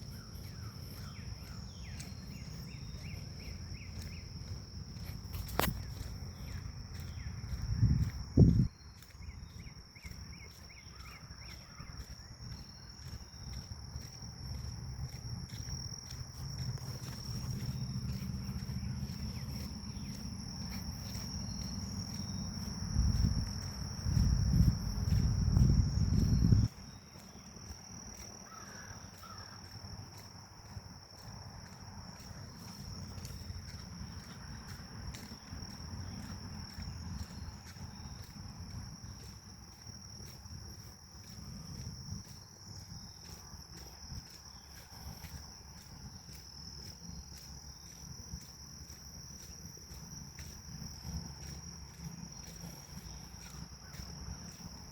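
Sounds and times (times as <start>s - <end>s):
insects droning: 0.0s - 54.9s
wind buffeting microphone: 5.4s - 10.4s, 15.5s - 26.9s.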